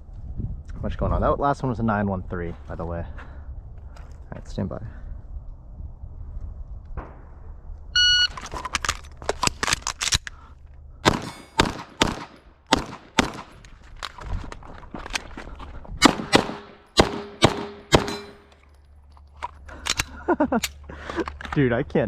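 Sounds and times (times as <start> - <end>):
shot timer beep: 8.0 - 8.4
handgun shots: 11.0 - 13.6, 16.0 - 18.5.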